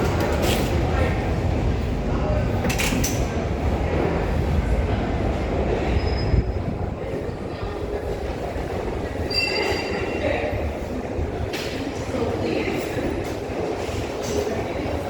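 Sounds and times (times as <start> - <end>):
subway train wheels rumbling: 0.0 - 15.0
wheel squeals: 9.2 - 10.4.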